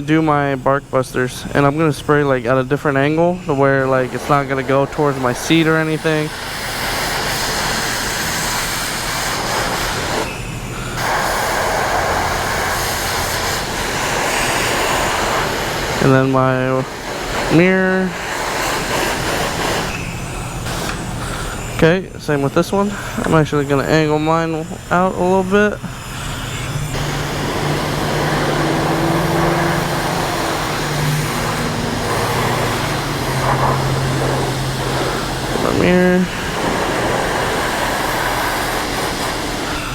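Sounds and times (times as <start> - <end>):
high-pressure water spray hissing: 3.6 - 21.8, 23.0 - 39.9.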